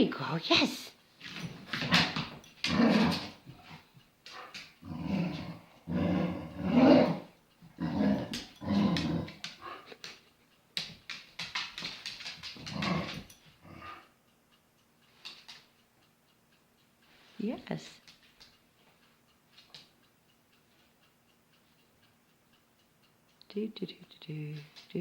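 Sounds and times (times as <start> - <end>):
dog growling: 1.4 - 3.8, 4.4 - 10.1, 12.5 - 14.1.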